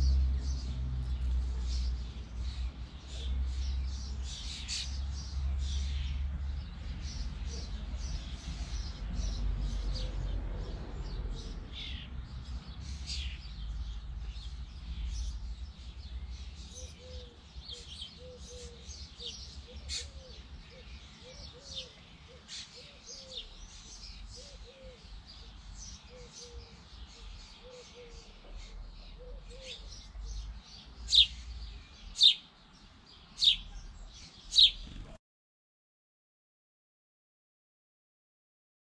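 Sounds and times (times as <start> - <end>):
small birds chirping: 0.0 - 35.2
loud sharp bird chirps: 33.4 - 35.2.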